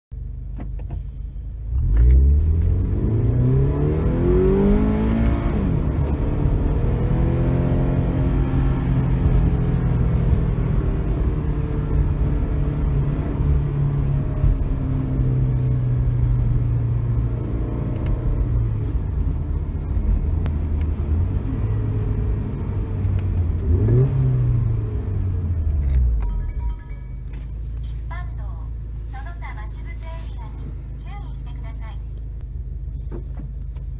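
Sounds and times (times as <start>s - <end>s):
engine steady drone: 0.2s - 33.9s
car engine revving: 1.6s - 26.2s.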